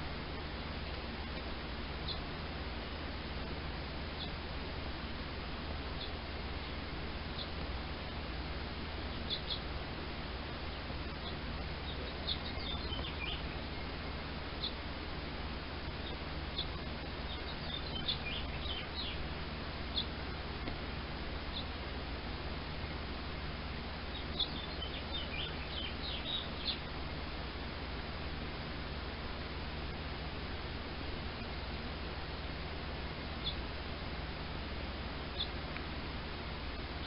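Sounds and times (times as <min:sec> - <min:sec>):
steady background hiss: 0:00.0 - 0:37.0
baby birds chirping: 0:02.0 - 0:02.3, 0:04.1 - 0:04.4, 0:05.9 - 0:07.6, 0:09.0 - 0:09.8, 0:10.8 - 0:14.8, 0:16.0 - 0:19.3, 0:19.9 - 0:20.2, 0:21.4 - 0:21.8, 0:24.1 - 0:27.0, 0:33.4 - 0:33.7, 0:35.3 - 0:35.6.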